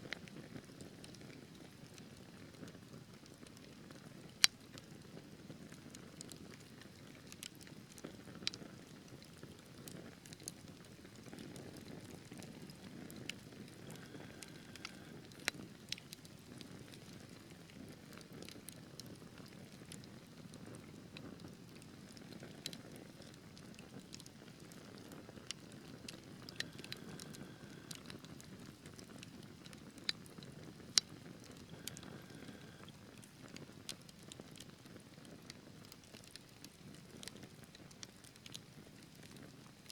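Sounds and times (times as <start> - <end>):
logs crackling and popping: 0.1 - 39.9
fire flames rumbling: 11.3 - 16.1, 19.4 - 34.1.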